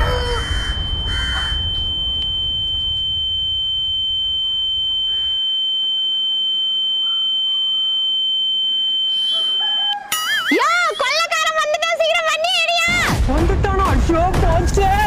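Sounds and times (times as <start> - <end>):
high-pitched electronic beep tone: 0.6 - 11.1.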